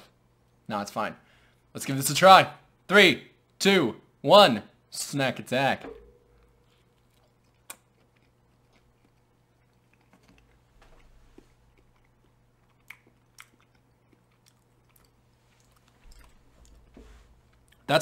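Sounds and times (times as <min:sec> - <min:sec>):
faint chewing: 0:06.4 - 0:17.9.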